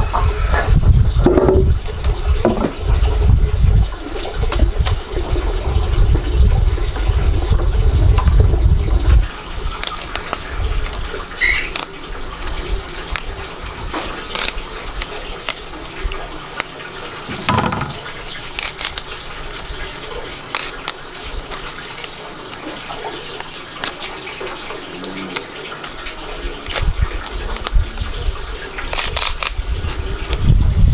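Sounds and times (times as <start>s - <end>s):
water running and splashing: 0.4s - 30.9s
dull thump: 17.3s - 18.1s
clicks and knocks: 17.3s - 18.2s.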